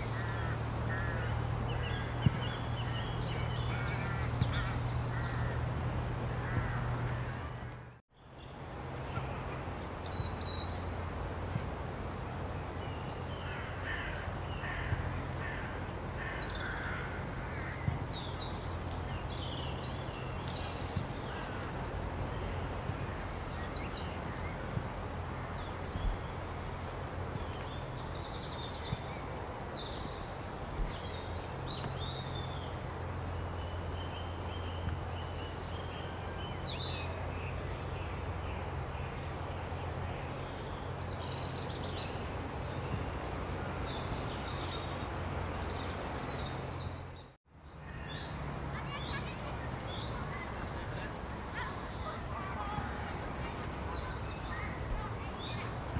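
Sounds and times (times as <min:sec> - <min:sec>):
harsh caw-like bird calls: 0:00.1 - 0:03.0, 0:03.6 - 0:05.7, 0:06.4 - 0:08.0, 0:13.4 - 0:18.0.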